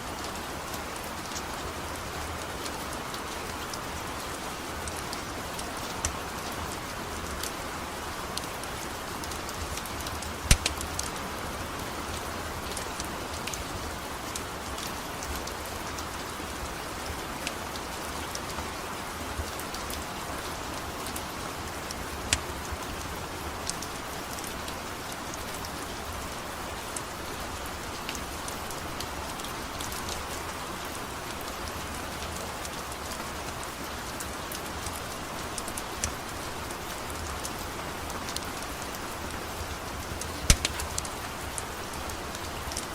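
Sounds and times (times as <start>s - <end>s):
steady rain: 0.0s - 42.9s
sharp clicks and pops: 10.4s - 11.0s, 22.3s - 22.5s, 40.2s - 41.1s.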